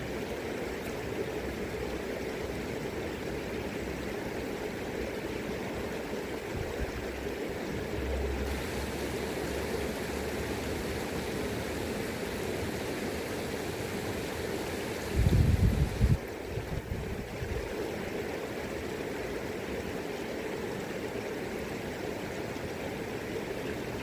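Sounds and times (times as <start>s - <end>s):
river water rushing: 0.0s - 24.0s
wind rumble on microphone: 15.0s - 17.7s.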